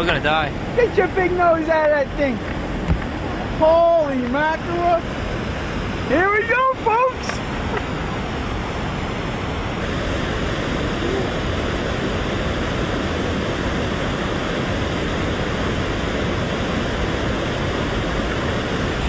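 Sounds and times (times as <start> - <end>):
river rapids rushing: 4.4 - 19.0.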